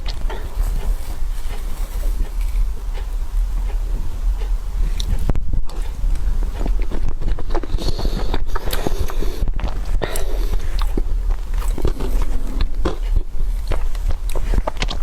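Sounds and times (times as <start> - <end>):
person biting and chewing: 0.0 - 15.0
steady low rumble: 0.0 - 15.0.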